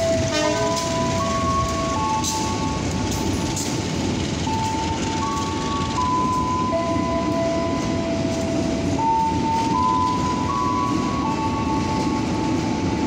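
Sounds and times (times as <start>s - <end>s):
freight train wheels rumbling: 0.0s - 13.0s
long held tones: 4.4s - 13.0s.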